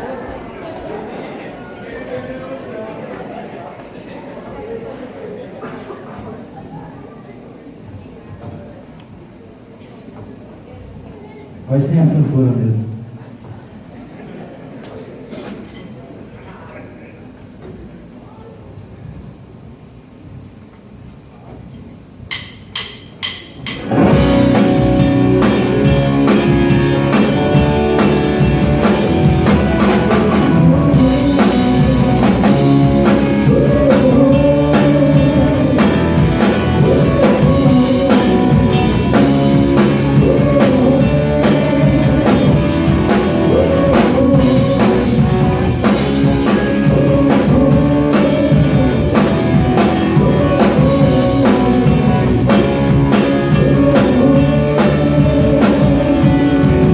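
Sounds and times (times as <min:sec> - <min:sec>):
drum kit: 0:22.3 - 0:56.9
live rock band playing: 0:23.6 - 0:56.9
electric guitar: 0:23.8 - 0:56.9.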